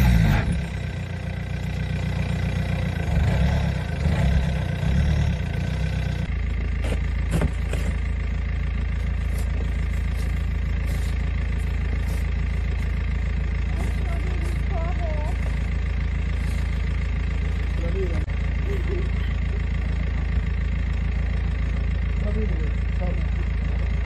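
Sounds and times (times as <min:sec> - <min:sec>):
car engine running: 0:00.0 - 0:24.0
snow shovel scraping snow: 0:09.3 - 0:12.3.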